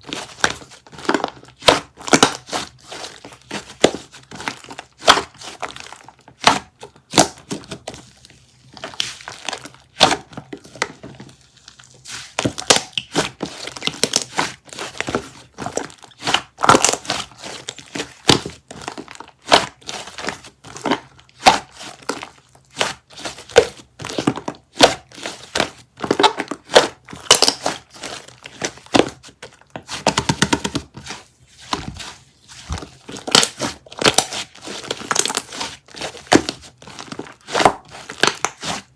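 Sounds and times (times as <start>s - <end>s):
slime crackling and popping: 0.1s - 7.9s, 11.6s - 38.9s.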